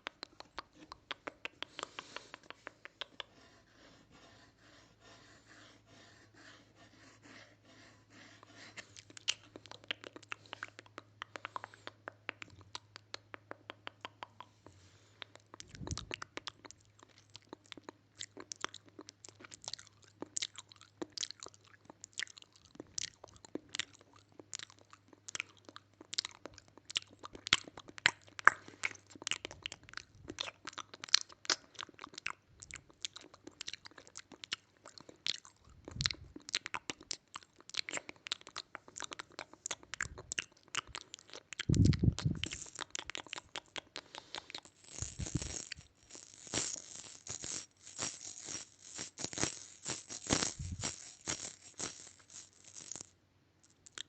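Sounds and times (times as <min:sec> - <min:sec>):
crisp crunching and clicking: 0:15.3 - 0:54.0.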